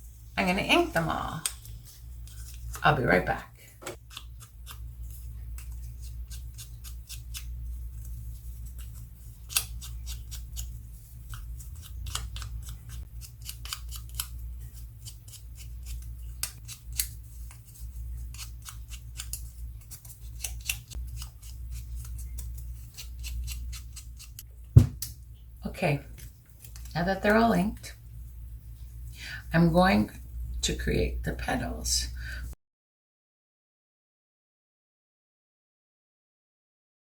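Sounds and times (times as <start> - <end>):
paper snipping and clicking: 4.0 - 4.8, 5.5 - 8.1, 8.7 - 24.4.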